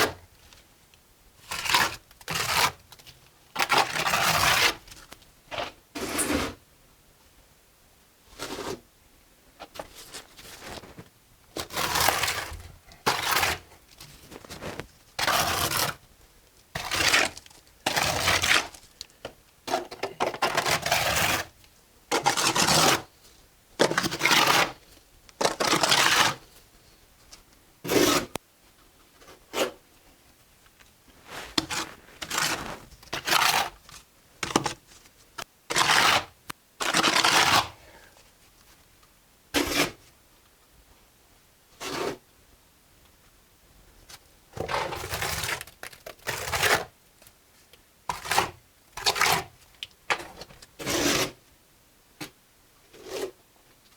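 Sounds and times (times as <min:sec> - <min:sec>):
trowel scraping mortar: 0:01.5 - 0:02.8, 0:03.6 - 0:04.8, 0:05.6 - 0:06.6, 0:11.6 - 0:13.7, 0:14.4 - 0:16.0, 0:16.8 - 0:18.8, 0:19.7 - 0:21.5, 0:22.1 - 0:23.1, 0:23.8 - 0:24.8, 0:25.4 - 0:26.5, 0:27.8 - 0:28.4, 0:31.2 - 0:33.8, 0:35.7 - 0:37.8, 0:50.8 - 0:51.4.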